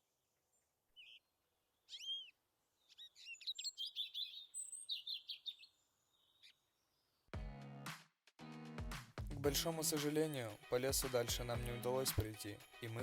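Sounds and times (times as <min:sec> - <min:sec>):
songbirds chirping and trilling: 0:00.6 - 0:07.3.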